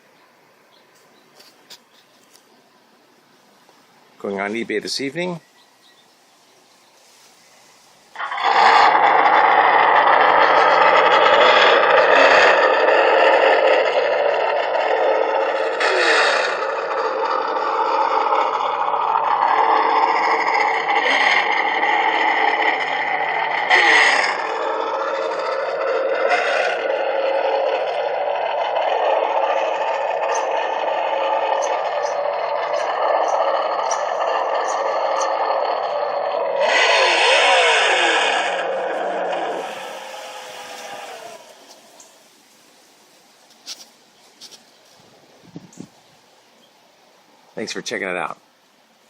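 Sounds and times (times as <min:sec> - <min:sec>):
toy truck motor whirring: 0:08.2 - 0:42.2
simulated engine sound from speaker: 0:09.9 - 0:42.1.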